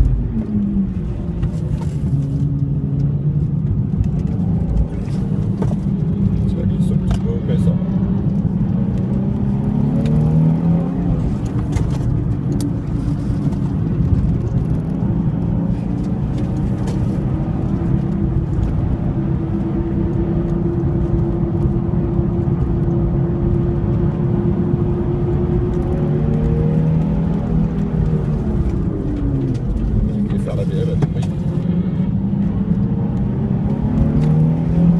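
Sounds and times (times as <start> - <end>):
car engine pulling: 0.0 - 34.9.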